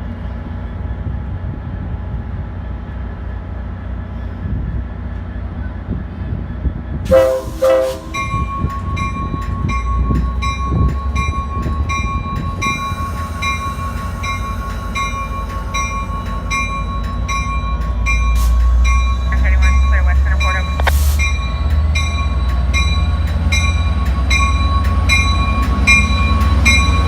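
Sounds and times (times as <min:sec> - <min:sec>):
train rumbling: 0:00.0 - 0:27.0
train horn blasts: 0:07.1 - 0:08.8
bell ringing: 0:07.6 - 0:27.0.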